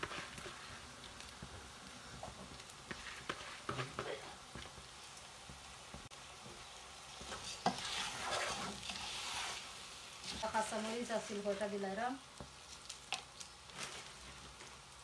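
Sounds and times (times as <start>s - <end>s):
spatula scraping a pan: 0.0s - 1.0s, 2.2s - 4.3s, 7.1s - 11.5s
rice sizzling in hot oil: 0.0s - 15.0s.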